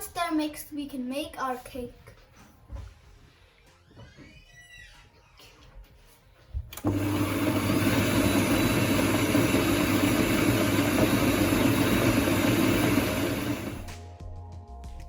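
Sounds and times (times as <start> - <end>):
electric mixer whisking: 6.8 - 13.9.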